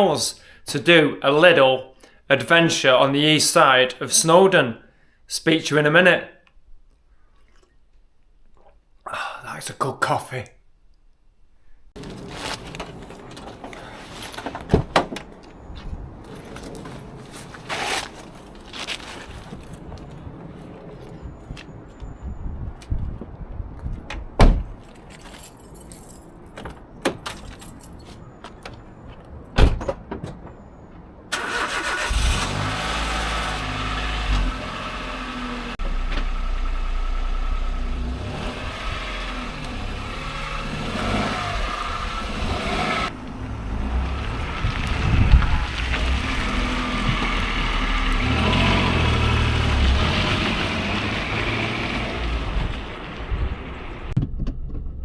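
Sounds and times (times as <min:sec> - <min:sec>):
car engine and road noise: 0:11.9 - 0:55.0.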